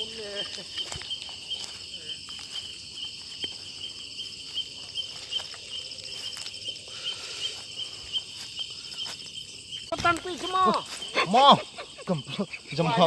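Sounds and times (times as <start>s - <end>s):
crickets chirping: 0.0s - 13.0s
high insect trill: 0.0s - 13.0s.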